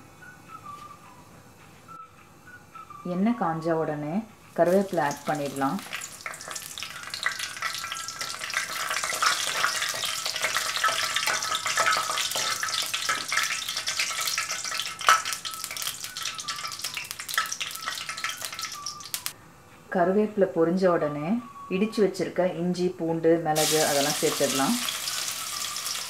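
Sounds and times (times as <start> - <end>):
leaves sizzling in hot oil: 4.5 - 19.4, 23.6 - 26.0.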